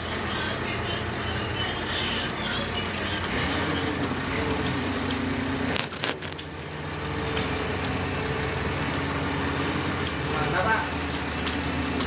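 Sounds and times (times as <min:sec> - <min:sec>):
excavator engine whining: 0:00.0 - 0:12.0
cracking and crunching: 0:03.2 - 0:12.0.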